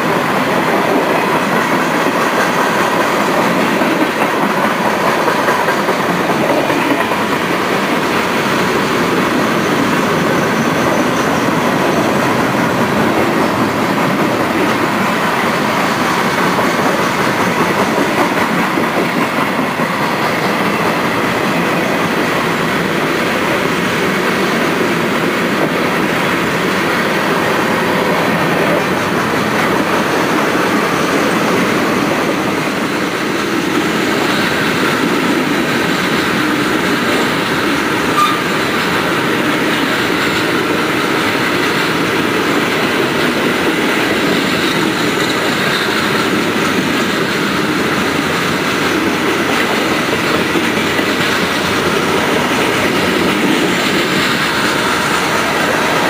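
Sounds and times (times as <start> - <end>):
train wheels rolling on rails: 0.0 - 56.0.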